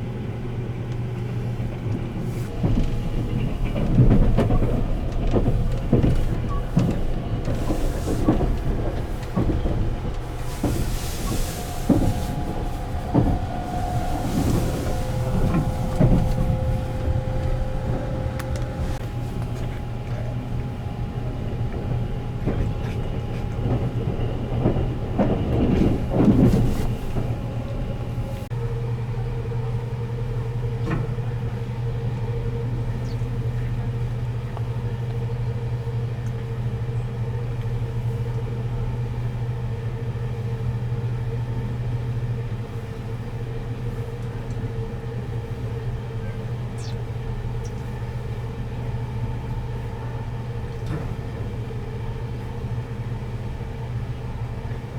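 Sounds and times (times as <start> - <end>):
train running on rails: 0.0 - 54.9
wheels clicking over rails: 1.7 - 28.4.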